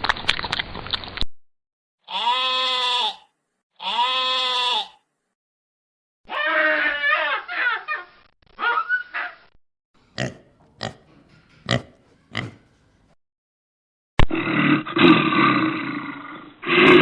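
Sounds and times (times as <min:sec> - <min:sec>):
pig squealing: 0:02.1 - 0:05.0, 0:06.3 - 0:09.5, 0:11.7 - 0:12.7
pig grunts: 0:10.2 - 0:12.7, 0:14.2 - 0:17.0.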